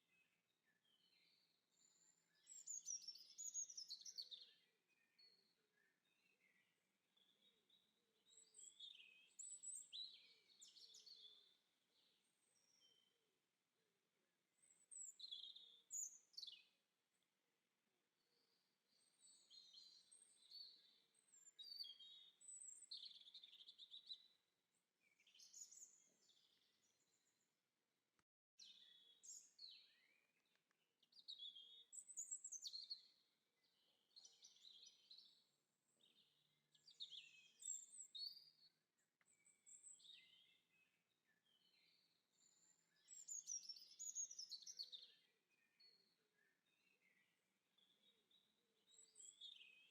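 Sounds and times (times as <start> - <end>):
small birds chirping: 0.1 - 13.2, 14.6 - 17.2, 18.3 - 27.4, 28.6 - 49.9.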